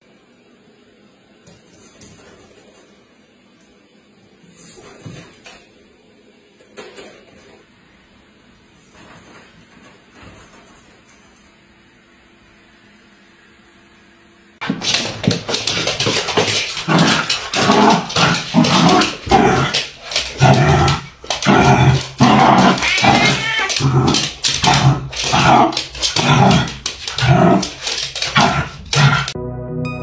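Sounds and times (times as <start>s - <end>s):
dog barking and growling: 14.8s - 29.4s.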